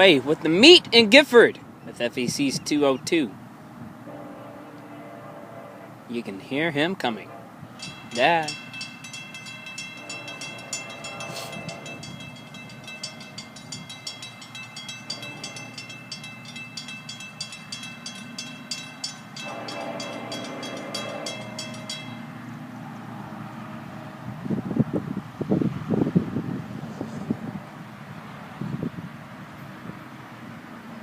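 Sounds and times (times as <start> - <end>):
freight train rumble: 2.3 - 31.0
crossing bell ringing rapidly: 7.8 - 22.9.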